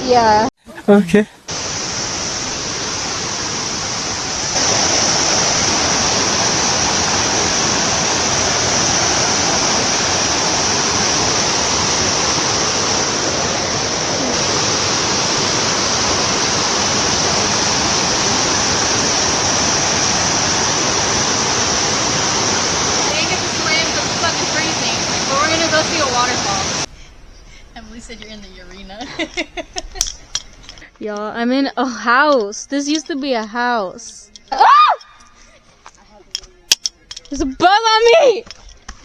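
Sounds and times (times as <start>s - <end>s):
creek water rushing over rocks: 1.4s - 30.9s.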